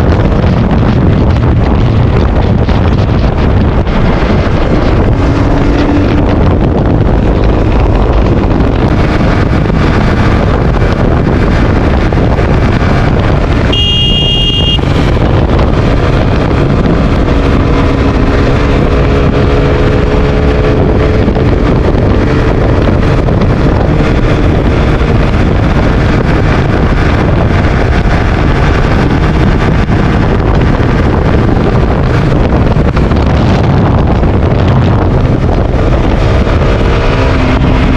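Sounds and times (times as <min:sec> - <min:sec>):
motorcycle engine running: 0:00.0 - 0:37.9
wind rush on microphone: 0:00.0 - 0:37.9
horn beep: 0:13.7 - 0:14.9.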